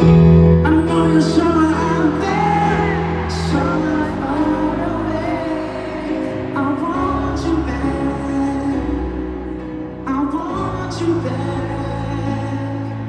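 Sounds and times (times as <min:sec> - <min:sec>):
wordless singing: 0:00.0 - 0:13.0.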